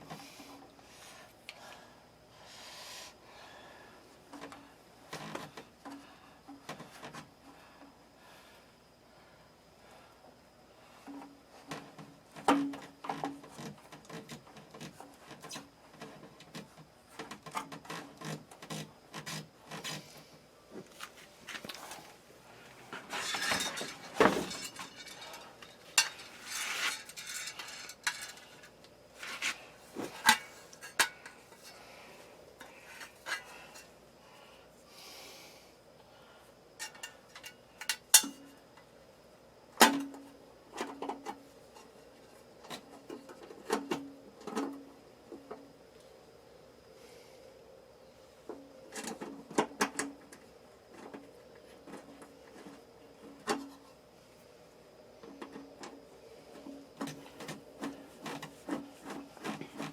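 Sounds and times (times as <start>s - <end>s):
metal tools clinking: 23.1s - 28.7s.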